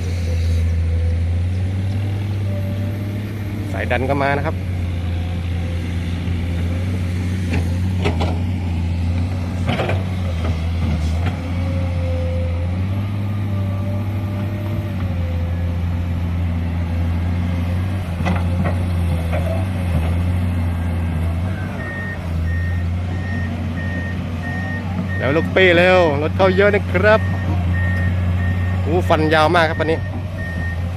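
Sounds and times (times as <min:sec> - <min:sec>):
heavy diesel machinery drone: 0:00.0 - 0:30.9
truck reversing alarm beeping: 0:20.6 - 0:30.9.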